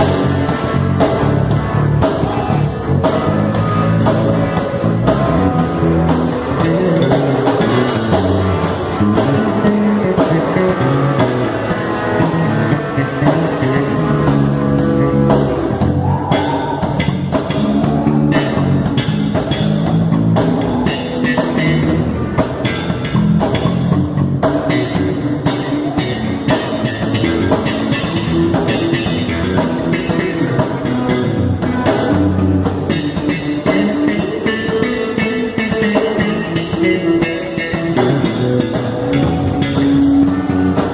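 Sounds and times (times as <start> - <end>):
rock music with guitar and drums: 0.0 - 40.9.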